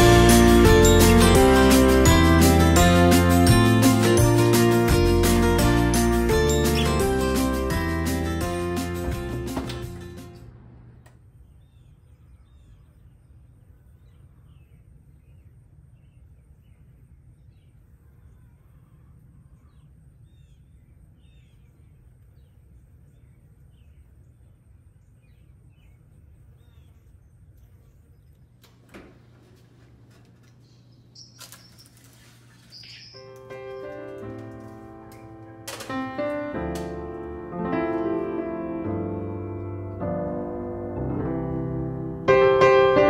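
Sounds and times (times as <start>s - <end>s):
small birds chirping: 6.3s - 7.7s, 11.2s - 28.9s, 30.2s - 35.6s
soft knocks: 9.0s - 10.2s
low steady rumble: 9.8s - 22.1s.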